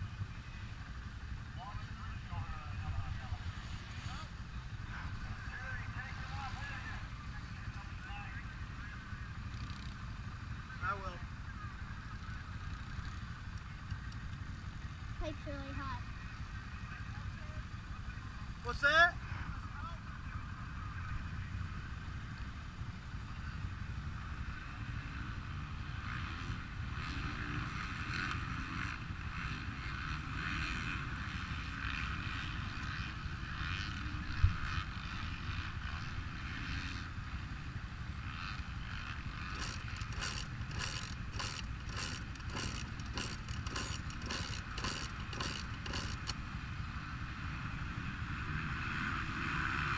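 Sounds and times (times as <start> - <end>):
sharp mechanical clicks: 39.5 - 46.4.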